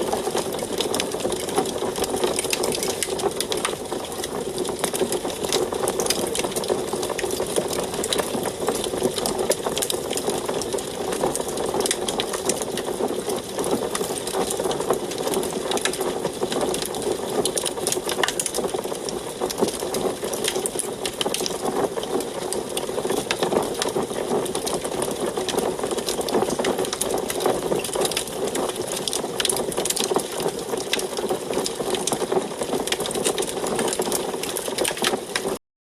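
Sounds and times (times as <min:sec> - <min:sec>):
wood fire crackling and snapping: 0:00.0 - 0:35.6.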